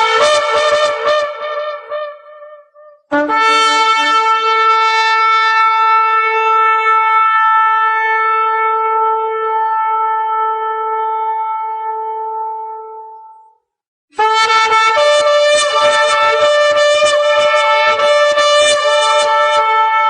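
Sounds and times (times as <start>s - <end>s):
ram's horn blast: 0.0s - 13.0s.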